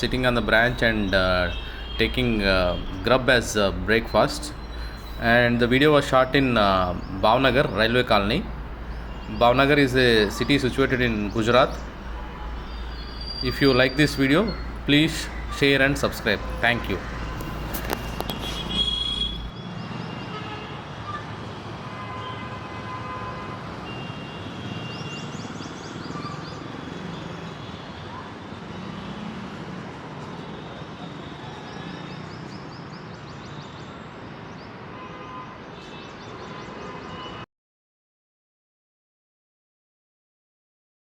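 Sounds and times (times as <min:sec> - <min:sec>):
distant road traffic hum: 0:00.0 - 0:37.4
short vehicle horn toots: 0:16.5 - 0:19.5.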